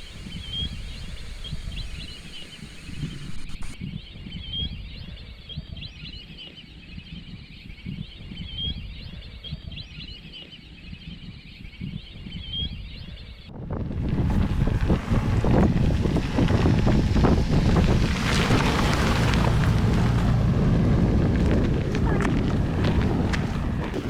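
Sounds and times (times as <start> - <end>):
birds chirping and whistling: 0.0 - 5.1
low rumble of wind: 0.0 - 5.2, 11.9 - 24.0.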